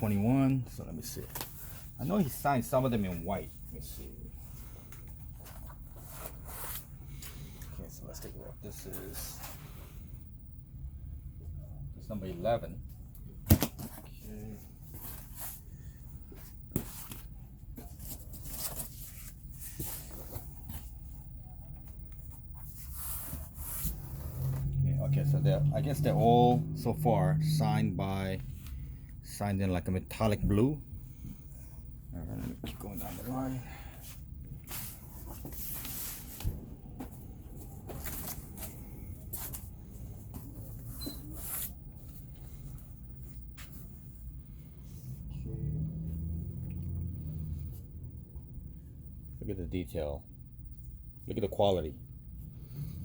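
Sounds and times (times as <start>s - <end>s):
low steady hum: 0.0s - 53.0s
canvas prints rustling: 32.2s - 45.2s.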